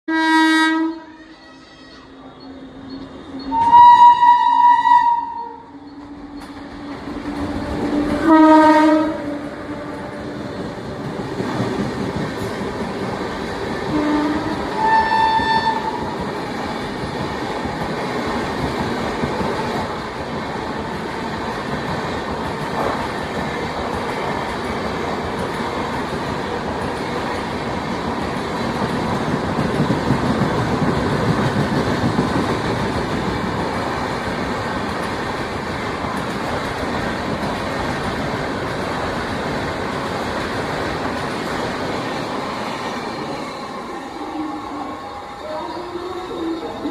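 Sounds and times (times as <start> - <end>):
train horn: 0.1 - 1.2, 3.5 - 5.8, 7.8 - 10.2, 13.9 - 16.1
train wheels rumbling on rail: 1.4 - 46.9.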